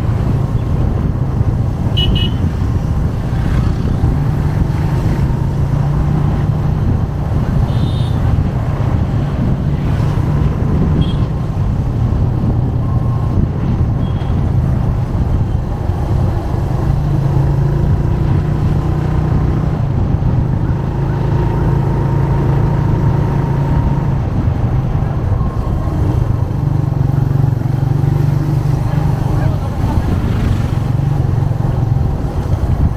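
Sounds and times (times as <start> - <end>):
motorcycle engine humming: 0.0 - 32.9.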